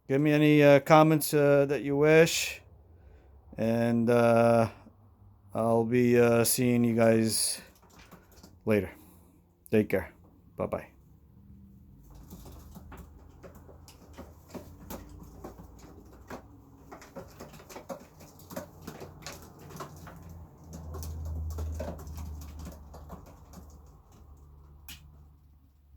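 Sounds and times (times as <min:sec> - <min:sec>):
pigeon feet and beaks tapping: 0:07.6 - 0:09.1, 0:11.8 - 0:25.6.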